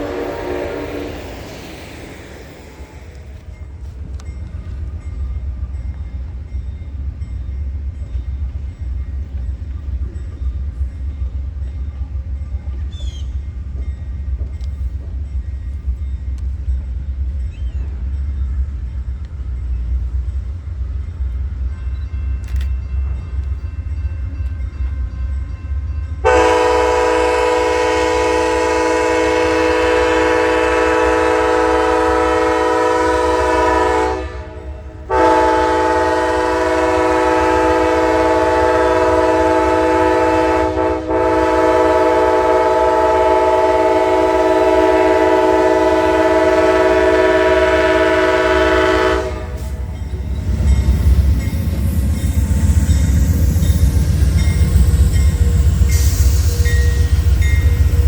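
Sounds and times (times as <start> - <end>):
locomotive air horn blast: 0.0 - 1.6, 26.2 - 49.9
train rumble: 0.0 - 58.0.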